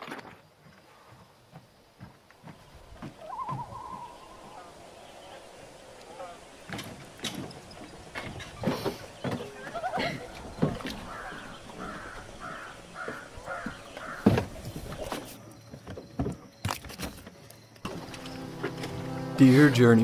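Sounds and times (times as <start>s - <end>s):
footsteps on wooden dock: 0.1s - 4.6s, 6.6s - 19.2s
bird calling: 2.6s - 15.3s
thump stepping into wooden boat: 13.0s - 17.2s.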